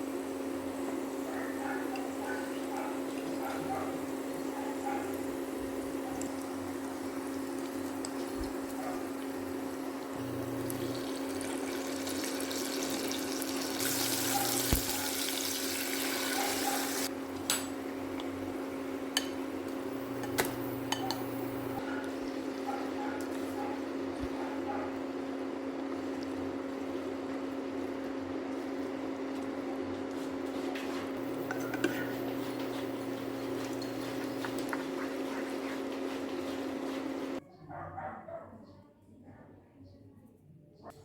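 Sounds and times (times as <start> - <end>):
water running from tap: 10.1 - 17.1, 31.2 - 37.4
steady low hum: 31.0 - 37.4.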